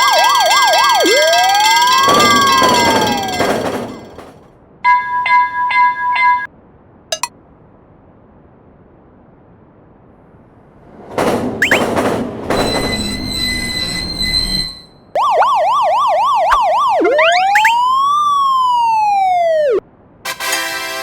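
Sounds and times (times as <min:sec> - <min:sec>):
police siren yelp and wail: 0:00.0 - 0:04.0, 0:15.2 - 0:19.8
loud noisy sound effect: 0:15.2 - 0:19.8.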